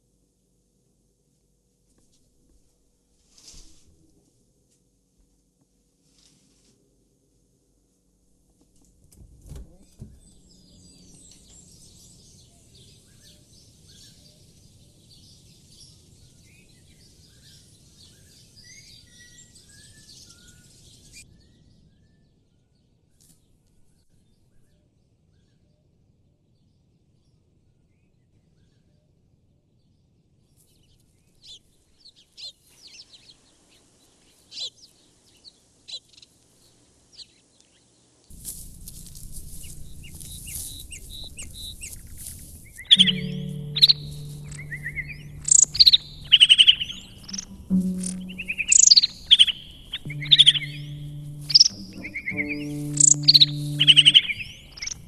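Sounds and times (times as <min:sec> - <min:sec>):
small birds chirping: 0:09.7 - 0:21.2, 0:31.0 - 0:55.0.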